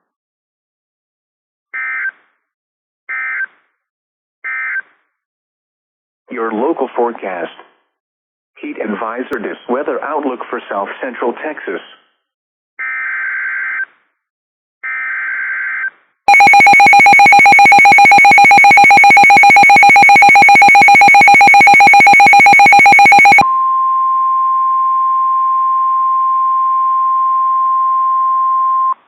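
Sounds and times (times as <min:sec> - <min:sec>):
harsh pulsing alert tone: 0:16.3 - 0:23.4
steady warning alarm tone: 0:16.3 - 0:23.4.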